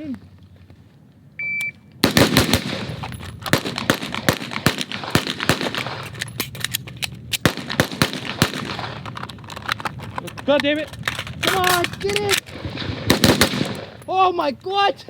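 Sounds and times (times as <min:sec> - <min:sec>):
shot timer beep: 0:01.4 - 0:01.8
rapid uneven gunfire: 0:02.0 - 0:06.1, 0:07.4 - 0:09.1, 0:10.8 - 0:14.0.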